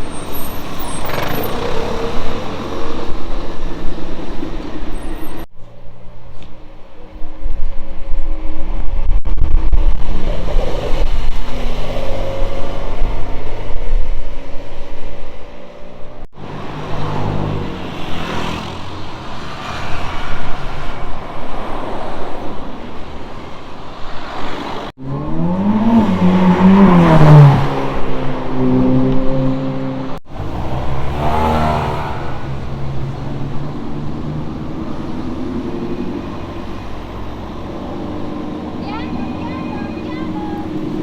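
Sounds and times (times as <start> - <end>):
supercar engines revving: 25.0 - 41.0.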